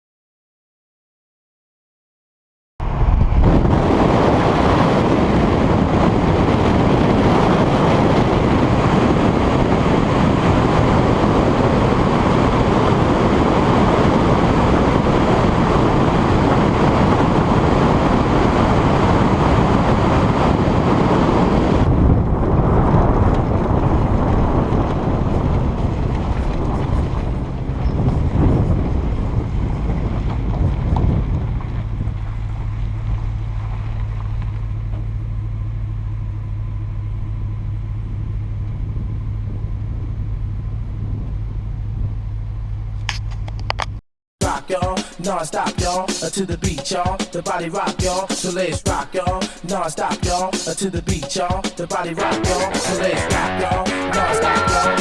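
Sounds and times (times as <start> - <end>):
wind rumbling on microphone: 2.8 - 44.0.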